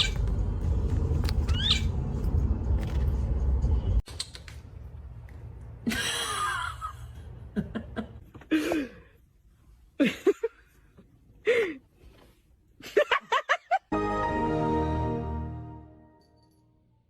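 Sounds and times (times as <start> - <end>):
music: 0.0 - 4.0, 13.9 - 16.8.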